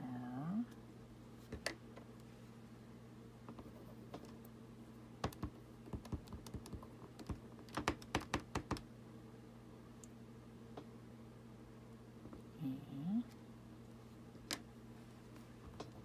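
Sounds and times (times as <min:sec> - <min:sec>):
wooden stamps clicking and tapping: 0:05.2 - 0:08.8.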